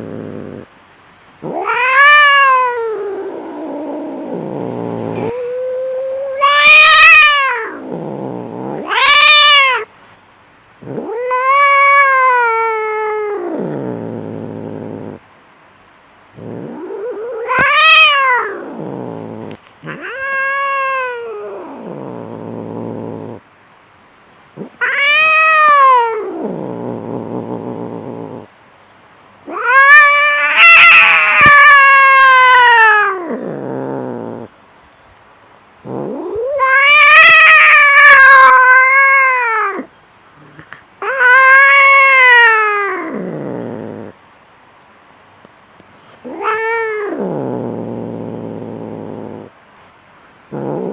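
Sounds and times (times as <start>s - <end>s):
cats yowling in a fight: 1.4s - 9.9s, 10.8s - 15.2s, 16.4s - 23.4s, 24.6s - 28.5s, 29.4s - 34.5s, 35.9s - 44.1s, 46.2s - 49.5s.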